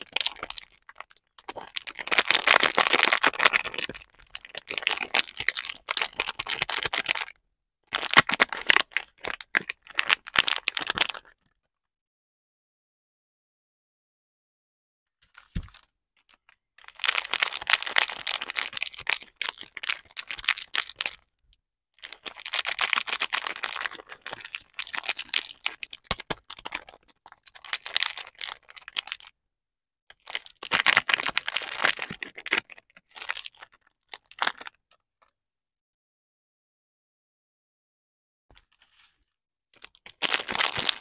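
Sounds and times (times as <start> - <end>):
packaging crinkling and tearing: 0.0 - 7.3, 7.9 - 11.3, 16.8 - 21.2, 22.0 - 29.3, 30.2 - 34.8, 39.8 - 41.0.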